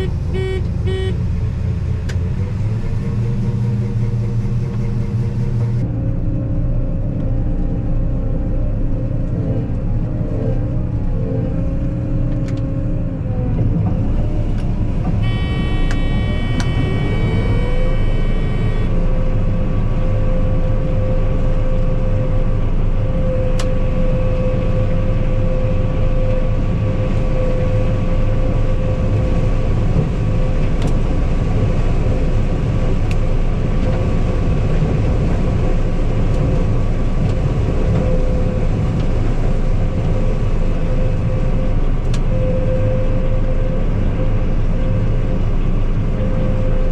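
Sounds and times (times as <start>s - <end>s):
diesel farm vehicle engine rumbling: 0.0s - 46.9s
high-pitched whine: 14.2s - 29.5s.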